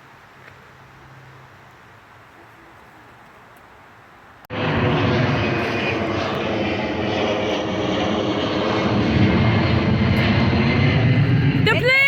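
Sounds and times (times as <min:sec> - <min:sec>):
airplane engine running: 0:04.5 - 0:12.0.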